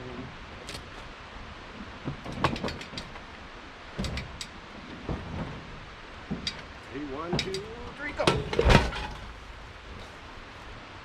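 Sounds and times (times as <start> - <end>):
hard objects knocking and clanking: 6.2 - 9.4.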